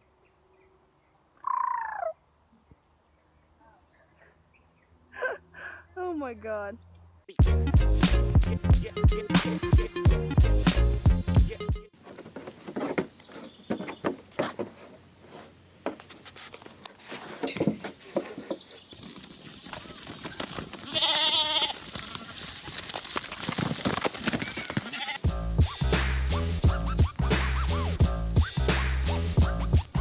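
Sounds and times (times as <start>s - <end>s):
goat or sheep bleating: 20.8s - 22.4s, 24.8s - 25.3s.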